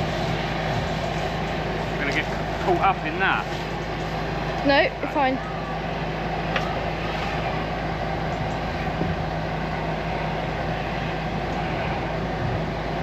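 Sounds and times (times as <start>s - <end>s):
drain jetter engine hum: 0.0s - 13.0s.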